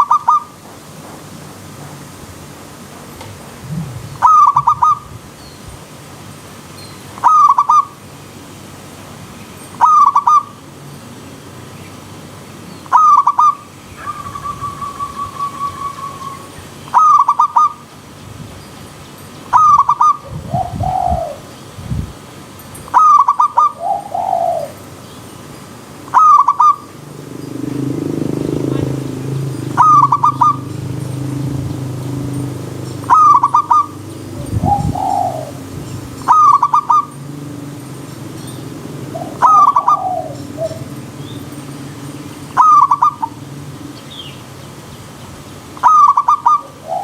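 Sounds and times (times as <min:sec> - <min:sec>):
dove cooing: 0:00.0 - 0:00.5, 0:03.7 - 0:05.0, 0:07.2 - 0:07.9, 0:09.8 - 0:10.5, 0:12.9 - 0:17.8, 0:19.5 - 0:21.5, 0:22.9 - 0:24.9, 0:26.1 - 0:37.6, 0:38.2 - 0:41.3, 0:42.6 - 0:43.5, 0:45.8 - 0:47.0
bird trill: 0:00.0 - 0:00.6, 0:04.2 - 0:05.6, 0:06.7 - 0:08.0, 0:09.5 - 0:11.1, 0:12.7 - 0:17.9, 0:18.6 - 0:21.6, 0:22.7 - 0:44.5, 0:45.8 - 0:47.0
low falling bird calls: 0:11.8 - 0:17.9, 0:22.8 - 0:47.0.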